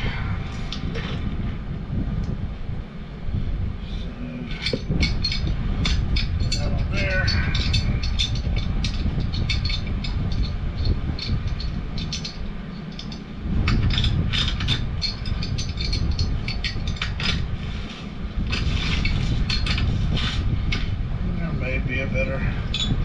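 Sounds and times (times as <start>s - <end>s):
steady low rumble: 0.0s - 23.0s
pipe wrenches clicking on metal: 4.5s - 20.9s, 22.7s - 23.0s.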